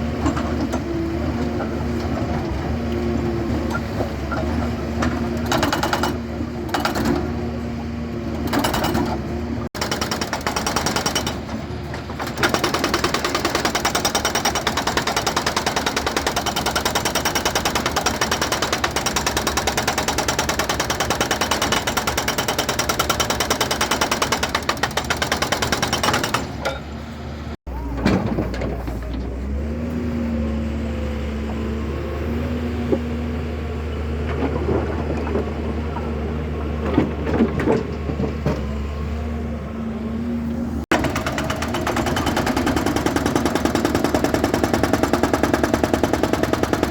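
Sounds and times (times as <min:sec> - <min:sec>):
excavator engine running: 0:00.1 - 0:46.9
hydraulic breaker hammering rock: 0:09.8 - 0:11.5, 0:12.2 - 0:26.8, 0:40.9 - 0:46.9.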